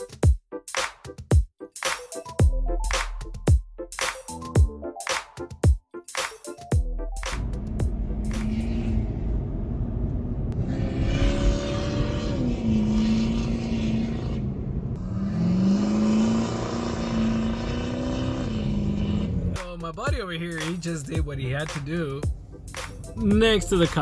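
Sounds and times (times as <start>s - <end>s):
road noise: 7.1s - 24.0s
vehicle engine running: 7.2s - 15.6s.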